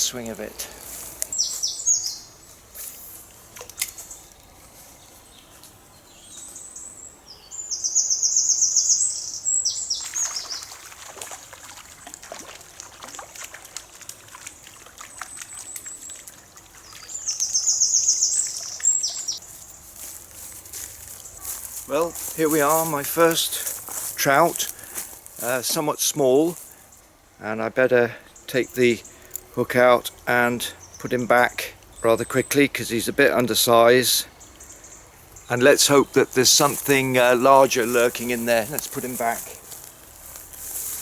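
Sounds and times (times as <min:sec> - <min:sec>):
songbird singing rapid trills: 0:01.3 - 0:02.6, 0:05.0 - 0:10.8, 0:15.2 - 0:20.0, 0:30.7 - 0:41.0
river trickling: 0:08.9 - 0:27.1, 0:34.5 - 0:41.0.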